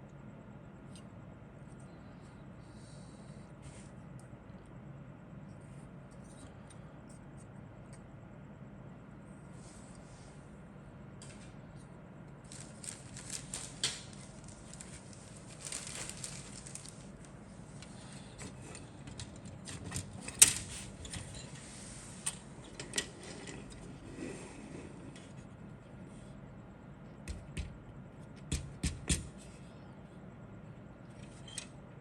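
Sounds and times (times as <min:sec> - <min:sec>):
packaging rustling: 0:12.4 - 0:17.4.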